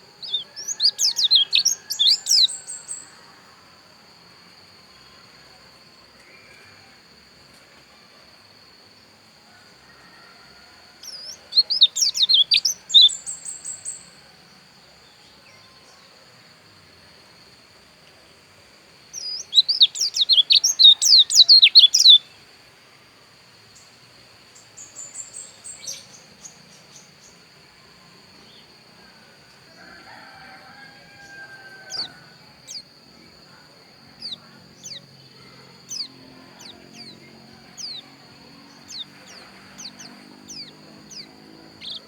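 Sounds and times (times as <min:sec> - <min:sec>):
bird twittering: 0:00.2 - 0:02.6, 0:11.1 - 0:13.6, 0:19.2 - 0:22.2, 0:38.8 - 0:42.0.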